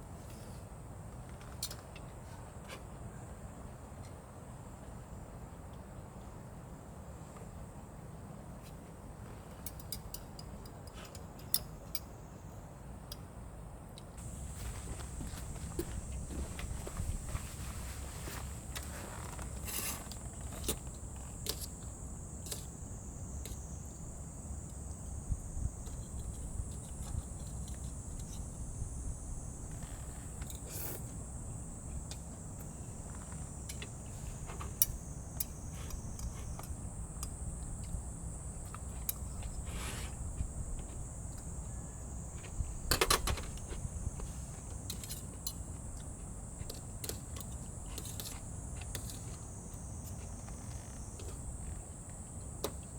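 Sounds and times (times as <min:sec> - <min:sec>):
insects chorus: 0:14.2 - 0:52.9.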